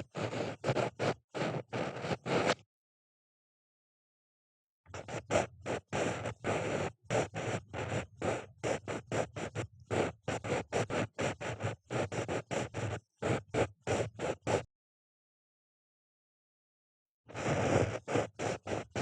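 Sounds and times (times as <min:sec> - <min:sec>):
ear pick scraping microphone: 0:00.0 - 0:02.6, 0:17.3 - 0:19.0.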